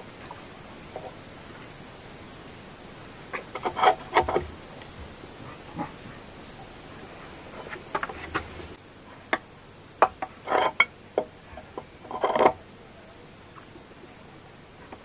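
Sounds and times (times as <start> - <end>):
sharp clicks and knocks: 3.3 - 5.0, 7.7 - 8.7
rustling: 3.3 - 9.4.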